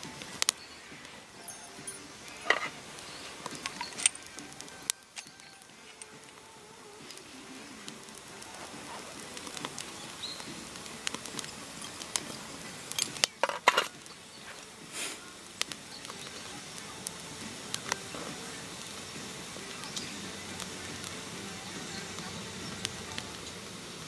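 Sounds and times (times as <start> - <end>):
objects clicking and clattering: 1.4 - 2.8, 3.4 - 6.4, 11.1 - 14.7.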